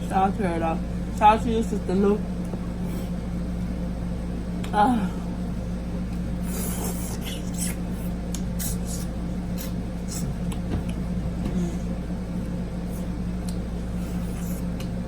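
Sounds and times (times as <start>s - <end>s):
air conditioner hum: 0.0s - 15.0s
chewing and lip-smacking: 6.4s - 11.0s.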